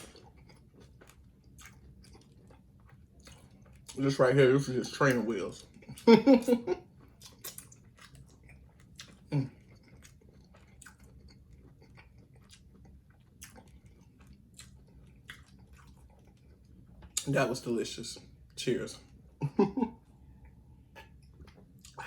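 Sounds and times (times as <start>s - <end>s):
person chewing: 0.0s - 17.3s, 20.3s - 22.0s
wet mouth clicks and smacks: 7.2s - 8.3s, 21.0s - 22.0s.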